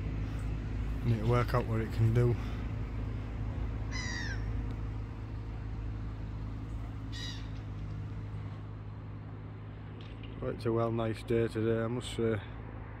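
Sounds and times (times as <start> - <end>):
bird falling calls: 3.9 - 4.6, 6.9 - 7.9.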